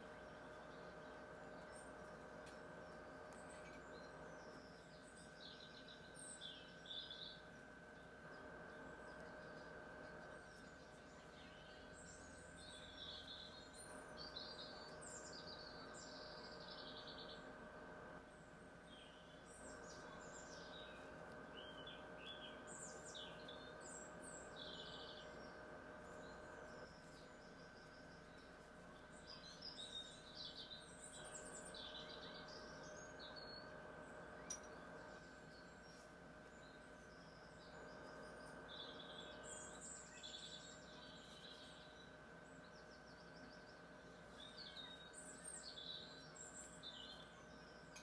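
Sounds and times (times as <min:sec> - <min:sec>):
faint steady hum: 0:00.0 - 0:48.0
birds chirping and trilling: 0:18.2 - 0:48.0.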